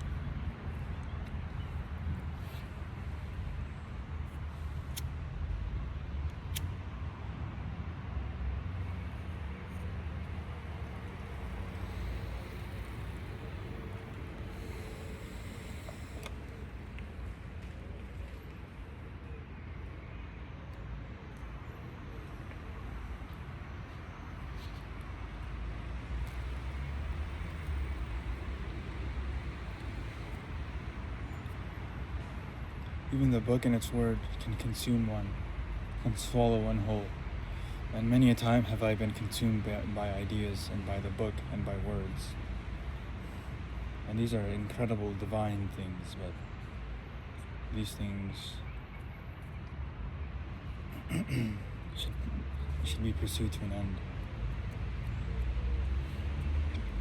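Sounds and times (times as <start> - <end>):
low outdoor rumble: 0.0 - 57.0
faint hiss: 10.2 - 17.4
sharp clicks: 10.8 - 17.1.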